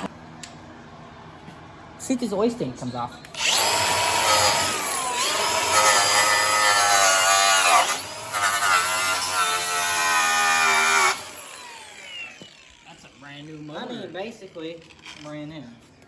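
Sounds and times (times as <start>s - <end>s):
electric drill whining: 3.3s - 15.5s.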